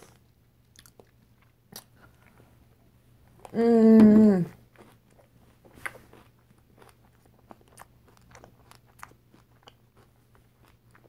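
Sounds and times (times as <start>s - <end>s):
person chewing with wet clicks: 0.0s - 2.4s, 4.6s - 11.0s.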